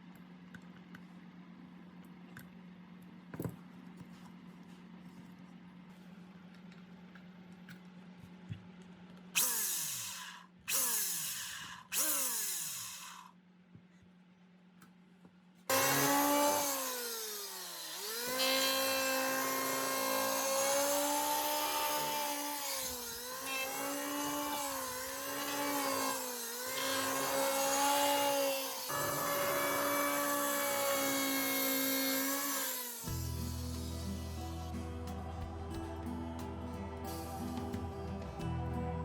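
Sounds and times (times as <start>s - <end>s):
electric planer cutting wood: 15.7s - 35.1s
soft background music: 33.1s - 39.0s.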